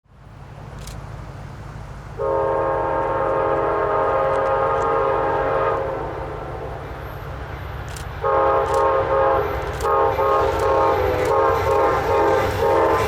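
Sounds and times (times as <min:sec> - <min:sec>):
passing train rumble: 0:00.1 - 0:13.0
locomotive air horn blast: 0:02.2 - 0:07.5, 0:08.2 - 0:13.0.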